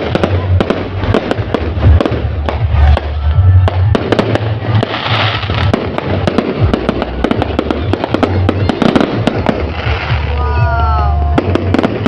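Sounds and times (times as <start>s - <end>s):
firecrackers banging and popping: 0.0s - 12.0s
firework hissing burst: 4.3s - 12.0s.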